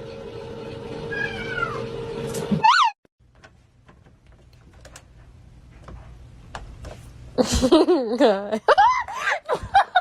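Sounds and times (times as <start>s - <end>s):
cat meowing: 1.1s - 1.8s.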